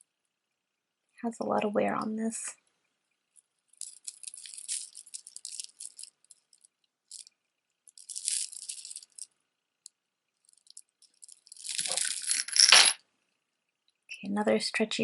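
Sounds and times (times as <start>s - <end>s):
jewelry rattling and clinking: 3.4s - 9.4s, 10.4s - 13.0s.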